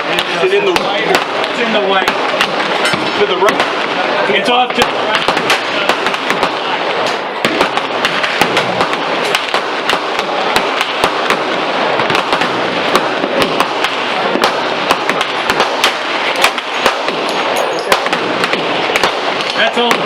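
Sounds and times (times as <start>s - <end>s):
gunshots: 0.0s - 20.0s.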